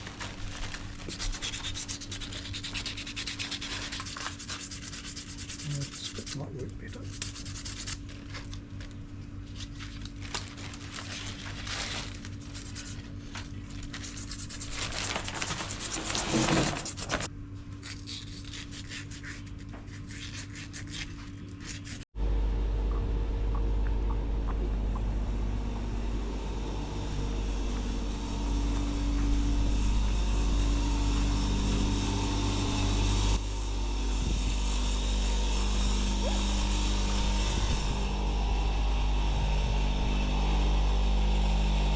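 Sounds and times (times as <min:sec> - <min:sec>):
ring being scrubbed: 0:01.1 - 0:08.1, 0:14.0 - 0:14.8
vehicle engine running: 0:22.2 - 0:41.9.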